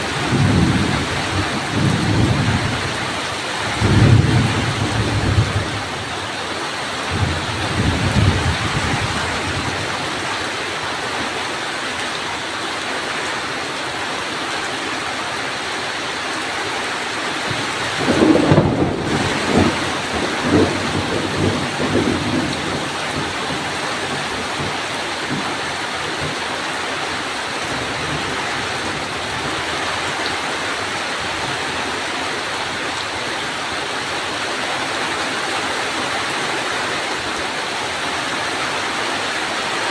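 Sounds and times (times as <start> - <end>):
heavy rain falling: 0.0 - 39.9
thunder rumbling: 0.1 - 6.0, 7.1 - 9.9, 17.5 - 26.4.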